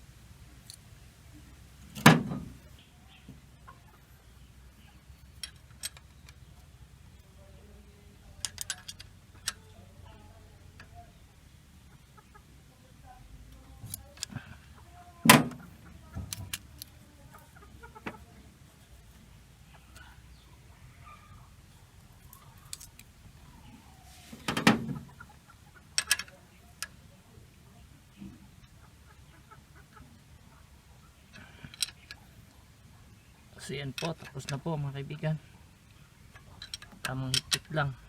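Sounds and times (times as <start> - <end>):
chickens clucking: 1.4 - 5.2, 9.2 - 38.0
hand tools clicking on metal: 26.0 - 27.0, 36.3 - 37.8.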